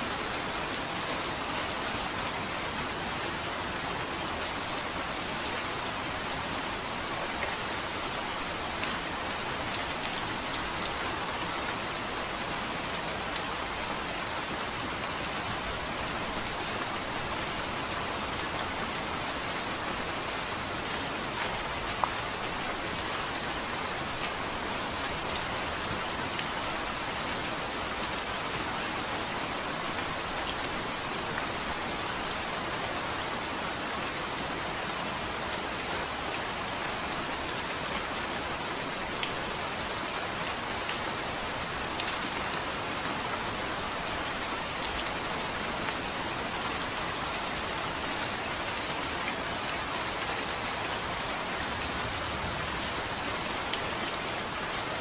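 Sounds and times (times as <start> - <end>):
rain on a hard surface: 0.0 - 55.0.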